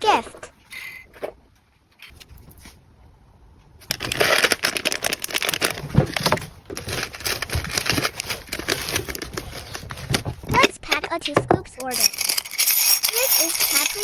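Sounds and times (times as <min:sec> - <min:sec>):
plastic packaging crinkling: 0:03.8 - 0:10.4.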